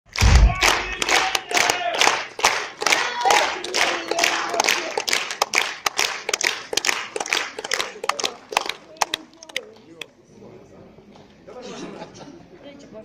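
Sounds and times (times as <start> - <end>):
audience clapping: 0.1 - 10.1.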